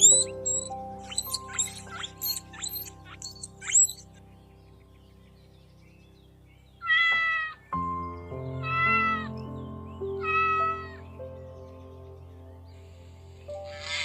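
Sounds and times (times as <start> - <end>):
background music: 0.0 - 14.0
cat meowing: 6.8 - 7.6, 8.6 - 9.3, 10.2 - 11.0.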